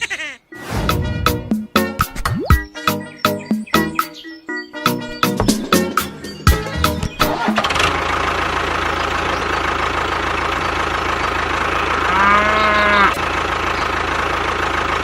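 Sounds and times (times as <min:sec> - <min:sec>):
sharp hits: 0:00.6 - 0:02.8
engine running: 0:05.4 - 0:15.0.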